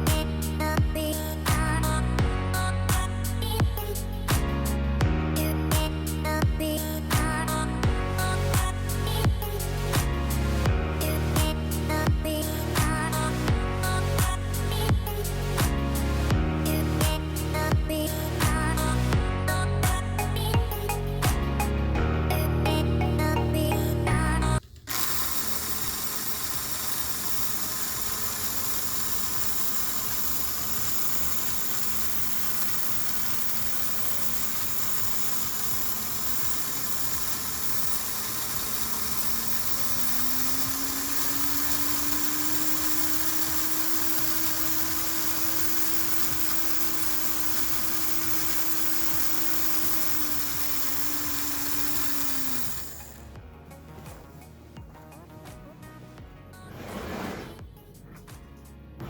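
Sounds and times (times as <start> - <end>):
model locomotive motor whirring: 24.6 - 53.4.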